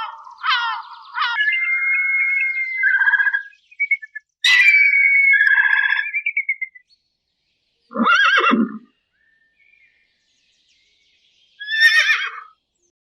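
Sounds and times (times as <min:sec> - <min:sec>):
animal calling: 0:00.0 - 0:06.6, 0:07.9 - 0:08.9, 0:11.6 - 0:12.5.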